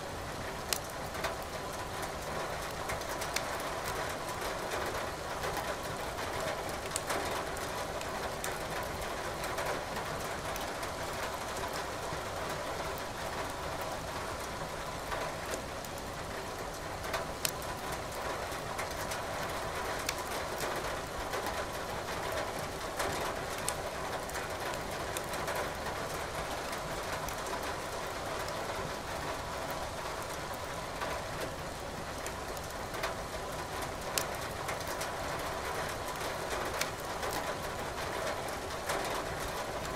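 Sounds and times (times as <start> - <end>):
steady rain hiss: 0.0 - 39.9
wood fire crackling: 0.7 - 1.9, 17.4 - 18.2, 20.0 - 20.3, 23.5 - 25.3.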